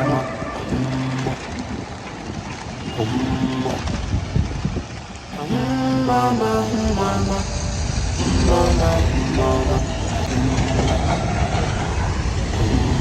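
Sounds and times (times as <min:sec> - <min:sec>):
person singing a song: 0:00.0 - 0:01.8, 0:02.9 - 0:04.0, 0:05.3 - 0:11.3, 0:12.4 - 0:13.0
low rumble: 0:00.0 - 0:13.0.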